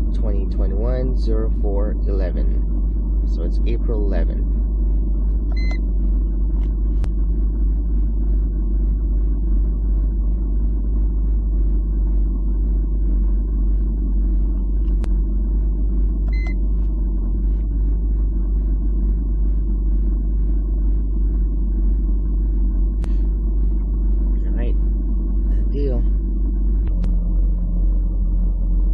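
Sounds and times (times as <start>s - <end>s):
low rumble: 0.0s - 28.9s.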